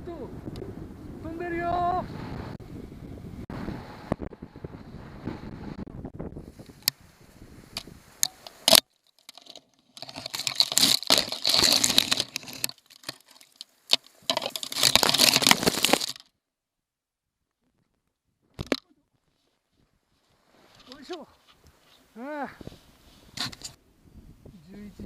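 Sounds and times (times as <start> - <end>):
rustling handling noise: 8.2 - 16.3, 18.6 - 22.1.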